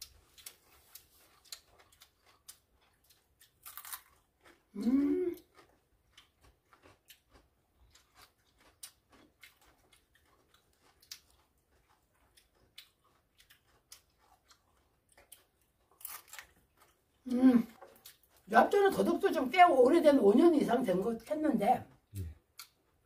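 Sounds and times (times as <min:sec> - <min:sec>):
crunching of root being chewed: 0:00.0 - 0:18.5, 0:21.9 - 0:23.0.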